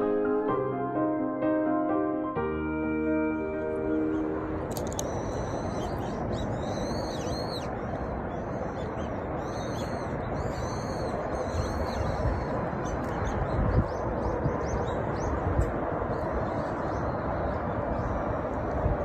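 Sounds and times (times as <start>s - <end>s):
steady background rush: 2.3s - 19.0s
small birds chirping: 3.9s - 15.6s.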